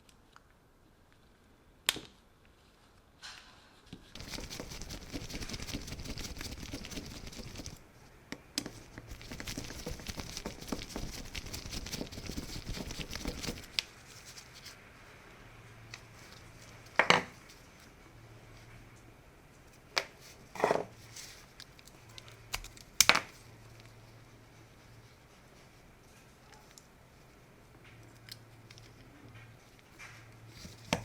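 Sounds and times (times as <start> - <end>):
scratchy crackling scraping: 4.1 - 7.8, 9.1 - 14.8.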